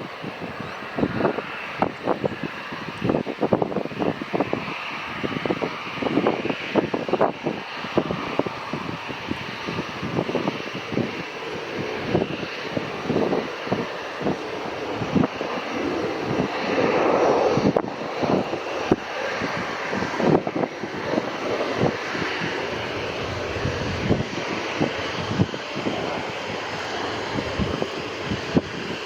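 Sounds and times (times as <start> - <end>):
jet engines running: 0.0 - 29.0
wind buffeting microphone: 0.0 - 29.0.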